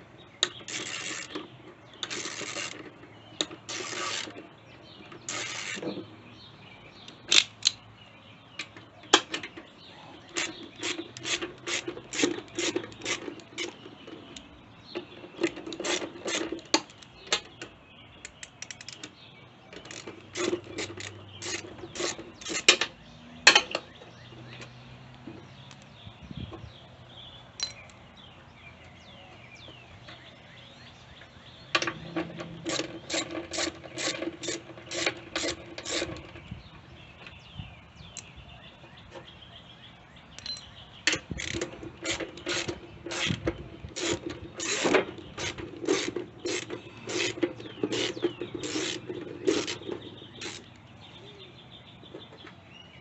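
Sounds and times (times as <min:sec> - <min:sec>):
ratchet wrench clicking: 0:05.3 - 0:05.8, 0:10.4 - 0:13.8, 0:19.9 - 0:22.8, 0:40.4 - 0:43.4, 0:44.0 - 0:50.7.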